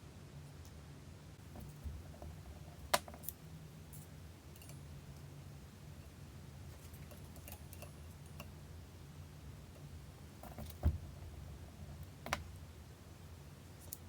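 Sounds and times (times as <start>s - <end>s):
steady low hum: 0.0s - 14.0s
tools clicking and tapping: 1.6s - 5.3s, 6.7s - 8.6s
dull thump: 10.4s - 11.4s.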